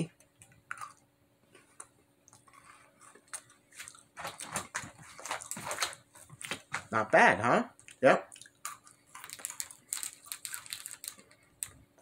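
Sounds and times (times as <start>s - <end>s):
biscuit stick bitten and chewed: 7.9s - 11.8s.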